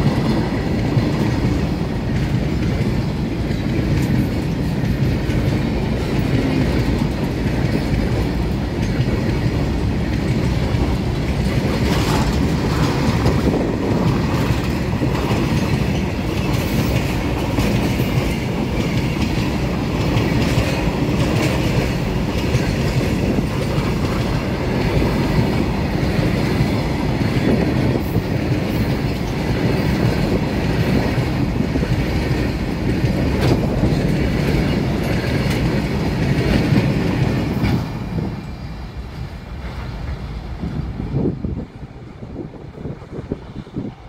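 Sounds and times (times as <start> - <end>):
freight train wheels rumbling: 0.0 - 44.0.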